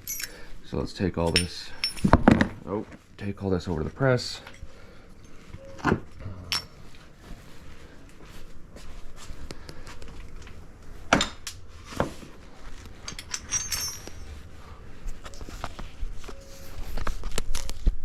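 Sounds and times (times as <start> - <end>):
metal parts clicking and knocking: 0.0 - 0.4, 1.2 - 2.5, 12.8 - 14.4
short metallic jingle: 13.2 - 14.3.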